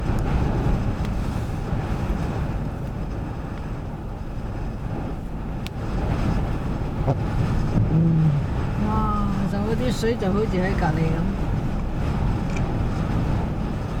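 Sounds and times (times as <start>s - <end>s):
wind buffeting microphone: 0.0s - 14.0s
ocean surf washing on shore: 5.3s - 14.0s.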